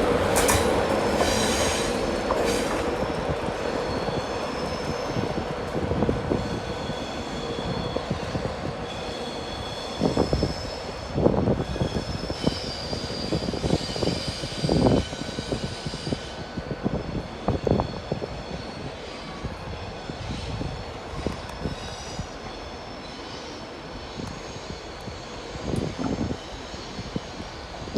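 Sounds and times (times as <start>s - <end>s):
train rumble: 0.0s - 27.9s.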